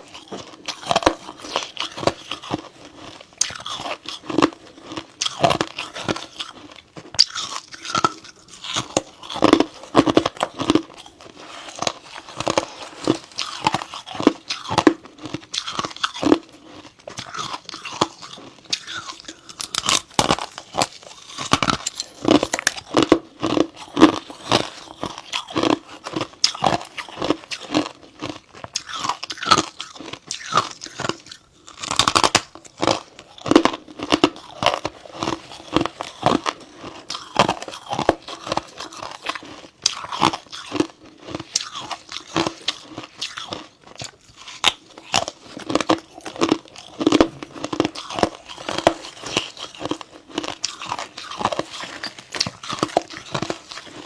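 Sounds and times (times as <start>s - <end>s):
chewing crunchy frost: 0.0s - 54.0s.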